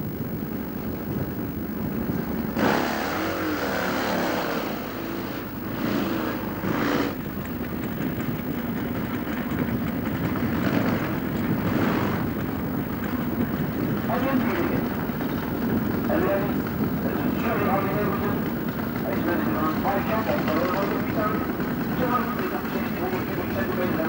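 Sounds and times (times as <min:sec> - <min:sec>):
motorcycle engine revving: 0:00.4 - 0:24.0.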